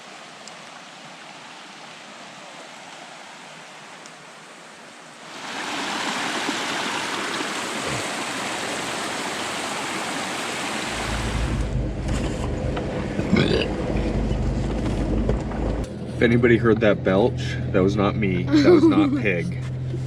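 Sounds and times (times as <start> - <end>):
creek water rushing: 0.0 - 11.7
person belching: 7.8 - 8.2, 13.3 - 13.7
vehicle engine rumble: 10.9 - 20.0.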